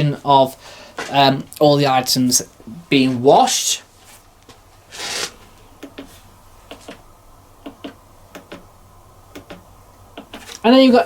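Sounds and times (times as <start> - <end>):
short hiss: 4.9 - 7.0.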